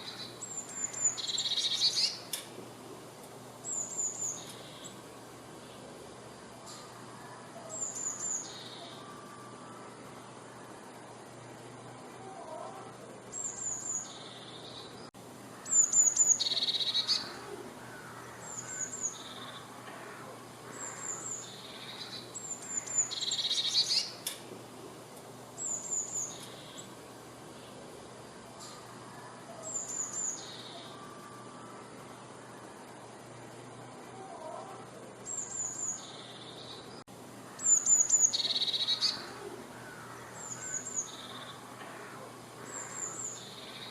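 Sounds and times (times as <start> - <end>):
bird singing with trill: 0.0 - 2.4, 3.6 - 5.0, 6.6 - 11.4, 12.1 - 19.8, 20.7 - 24.3, 25.6 - 26.9, 28.6 - 32.8, 35.2 - 43.9.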